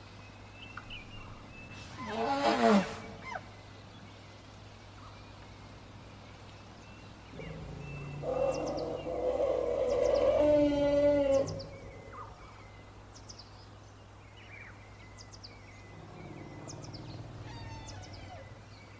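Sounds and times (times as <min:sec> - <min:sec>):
elephant trumpeting: 0:01.9 - 0:03.5, 0:07.4 - 0:12.4, 0:16.0 - 0:18.7
bird chirps: 0:14.4 - 0:18.9.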